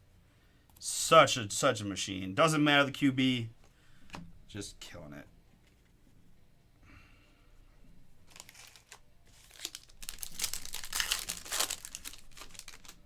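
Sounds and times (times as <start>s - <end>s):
foil wrapper crinkling and tearing: 8.3s - 13.0s.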